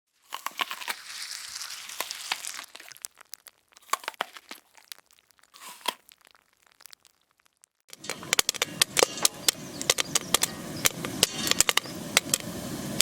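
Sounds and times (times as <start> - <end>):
crackles and pops: 0.1 - 13.0
bacon sizzling in a pan: 0.2 - 13.0.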